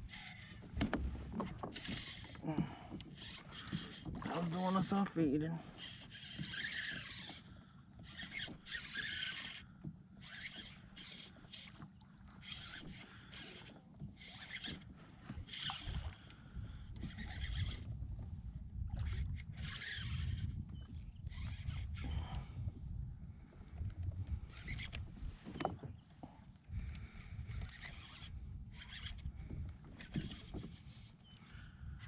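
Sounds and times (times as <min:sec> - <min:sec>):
paddle strokes splashing water: 0:00.0 - 0:17.6
wind rumble on microphone: 0:15.2 - 0:26.1, 0:26.7 - 0:32.0.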